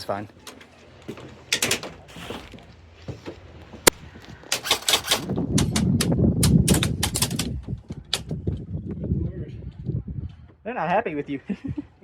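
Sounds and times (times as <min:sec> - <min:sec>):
airsoft gun shots: 0:04.5 - 0:05.8.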